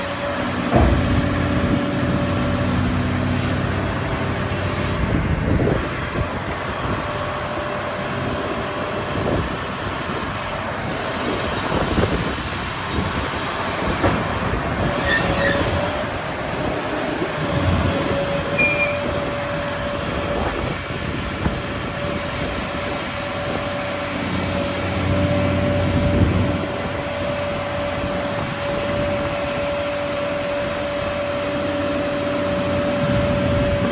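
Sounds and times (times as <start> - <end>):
excavator engine: 0.0 - 33.9
metallic knocks and squeals: 15.0 - 15.9, 18.5 - 19.3.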